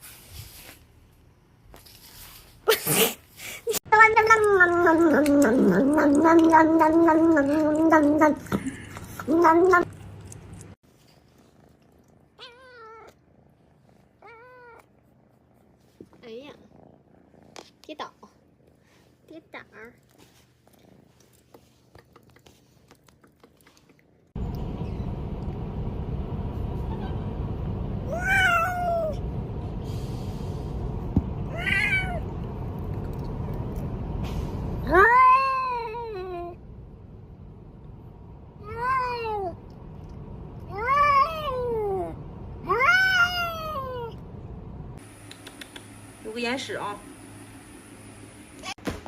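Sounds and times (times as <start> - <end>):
loud steady rumbling: 24.4 - 35.4, 36.1 - 45.1
cat meowing: 31.4 - 32.4.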